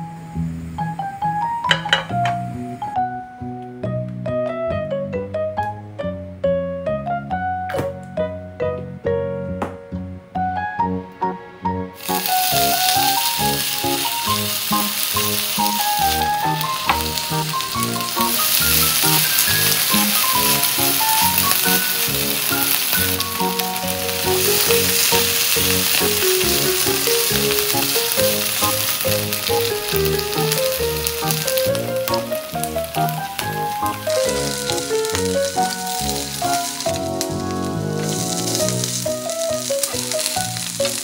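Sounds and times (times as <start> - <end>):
background music melody: 0.0 - 41.0
food sizzling in frying pan: 0.8 - 2.9, 12.0 - 41.0.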